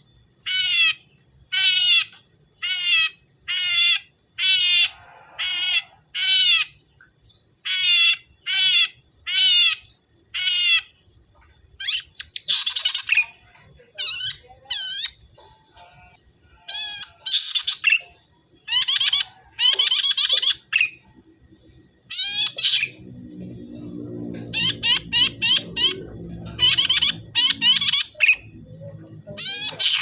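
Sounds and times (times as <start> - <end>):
bird buzzy chattering calls: 0.0 - 30.0
low hum: 18.0 - 29.9.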